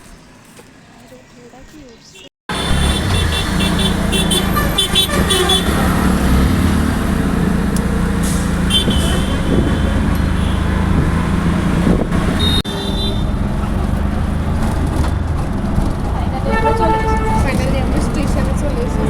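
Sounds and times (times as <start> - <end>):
auto-rickshaw engine and road noise: 0.0 - 19.0
horn toots: 2.5 - 6.4, 8.2 - 11.3, 11.9 - 13.4, 16.4 - 17.9.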